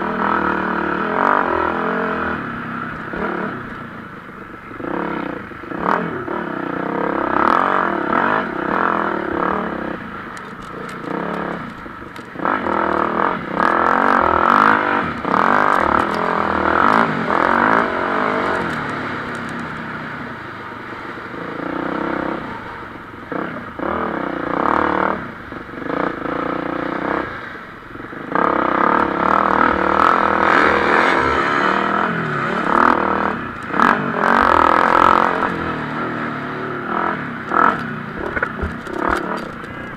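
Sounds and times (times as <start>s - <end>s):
motocross engines revving: 0.0s - 3.8s, 4.6s - 27.4s, 28.0s - 39.9s.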